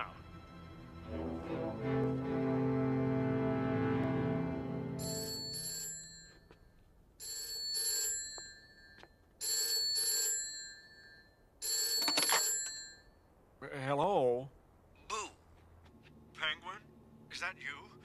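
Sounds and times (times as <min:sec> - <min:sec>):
telephone bell ringing: 0:05.0 - 0:13.2.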